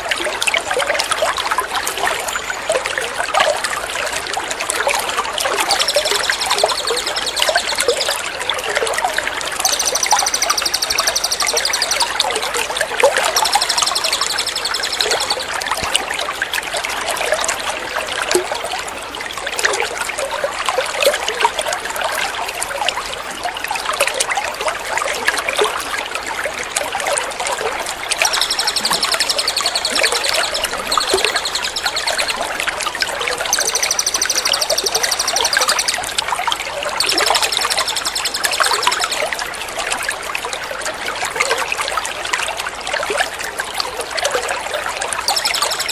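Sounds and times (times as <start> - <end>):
water trickling and splashing: 0.0 - 45.9
songbird trilling: 5.6 - 8.3, 9.6 - 12.4, 13.2 - 15.6, 28.1 - 32.7, 33.3 - 36.2, 37.0 - 39.4, 45.2 - 45.9.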